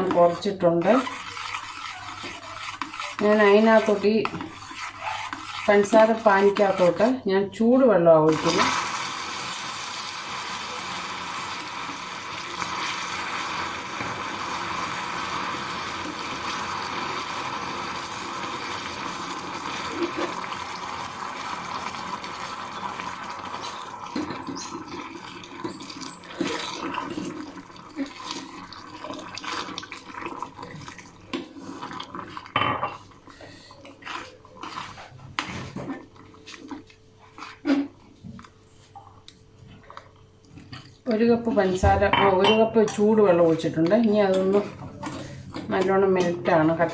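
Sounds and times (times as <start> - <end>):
water hissing and bubbling in pan: 8.3 - 32.2.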